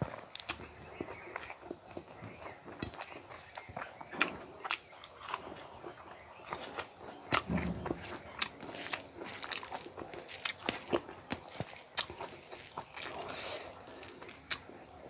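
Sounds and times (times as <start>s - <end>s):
chewing with crunches: 0.0s - 15.0s
fingers mixing food on steel plate: 0.4s - 14.9s
dull low thump: 7.4s - 8.4s.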